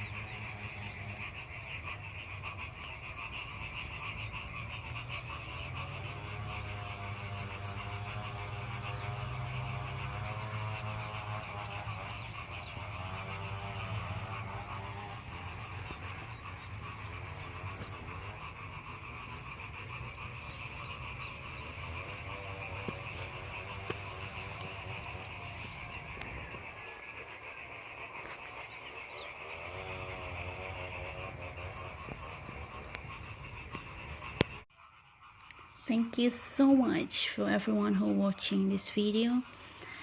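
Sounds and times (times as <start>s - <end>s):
frogs croaking: 0.0s - 40.0s
insects trilling: 0.0s - 40.0s.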